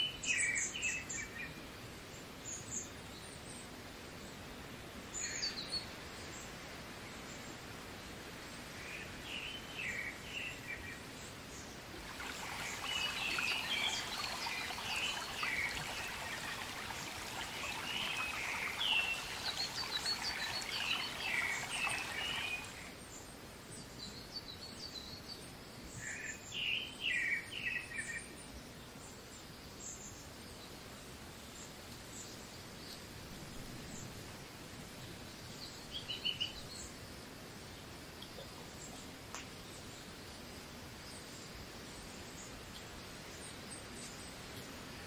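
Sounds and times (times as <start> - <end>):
small rocky stream hissing: 5.0 - 23.2
birds chirping: 12.0 - 22.9.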